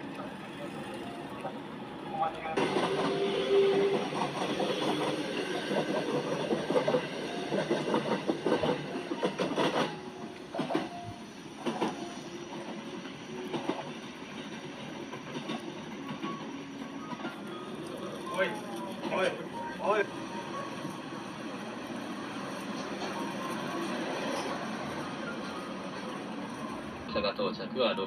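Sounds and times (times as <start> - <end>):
passenger train passing: 0.0 - 28.0.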